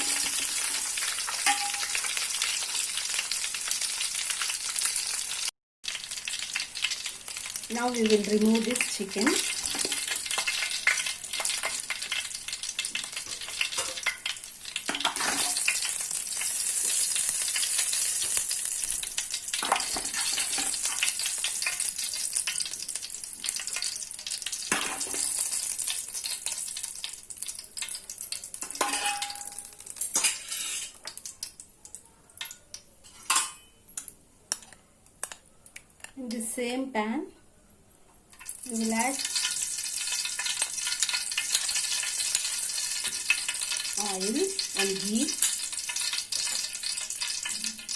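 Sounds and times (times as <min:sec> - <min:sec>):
chicken sizzling in a pan: 0:00.0 - 0:31.6, 0:38.4 - 0:47.9
utensil clinking against pan: 0:28.6 - 0:29.6.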